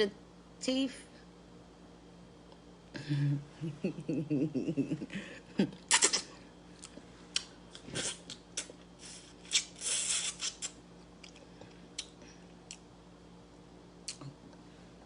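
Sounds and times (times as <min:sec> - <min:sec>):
person chewing with wet smacking: 0:05.9 - 0:08.9, 0:09.5 - 0:12.9, 0:14.0 - 0:14.4.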